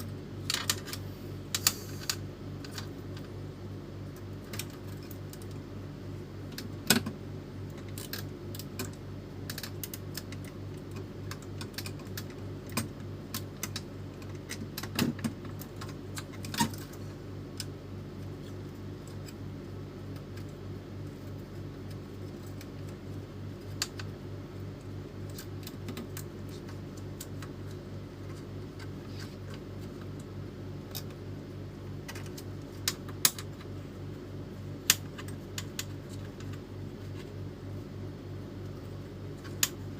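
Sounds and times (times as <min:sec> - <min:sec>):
steady low hum: 0:00.0 - 0:39.9
printer parts clicking and rattling: 0:07.7 - 0:17.0.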